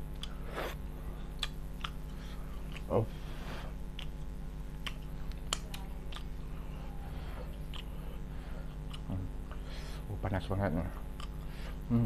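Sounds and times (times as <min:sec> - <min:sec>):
steady low hum: 0:00.0 - 0:12.0
chewing: 0:00.2 - 0:03.0, 0:03.7 - 0:09.6, 0:10.9 - 0:11.5
wet lip-smack clicks: 0:01.4 - 0:02.0.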